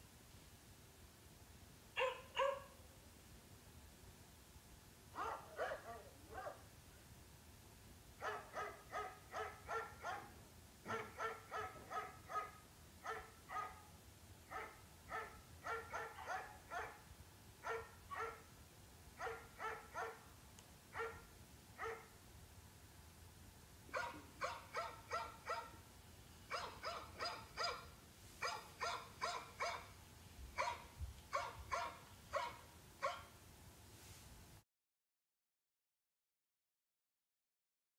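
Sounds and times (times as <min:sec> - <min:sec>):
dog yapping: 0:02.0 - 0:02.7, 0:05.2 - 0:06.6, 0:08.2 - 0:10.3, 0:10.9 - 0:13.8, 0:14.5 - 0:17.0, 0:19.2 - 0:20.2, 0:24.0 - 0:25.8, 0:26.5 - 0:29.9, 0:30.6 - 0:33.2.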